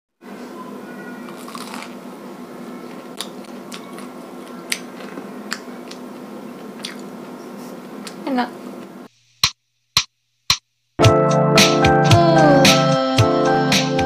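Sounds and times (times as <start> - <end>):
room hum: 0.2 - 11.0
crunching of fried food being chewed: 1.3 - 2.0, 2.9 - 8.2.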